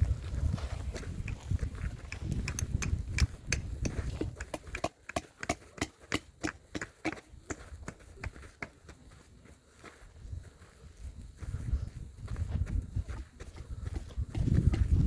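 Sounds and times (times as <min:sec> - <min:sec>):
footsteps on gravel: 0:00.0 - 0:15.0.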